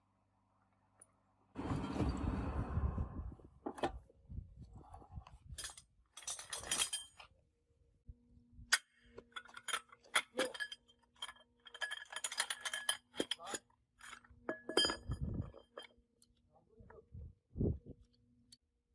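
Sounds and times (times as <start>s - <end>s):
metal tools clinking: 5.5s - 7.2s, 8.7s - 16.0s.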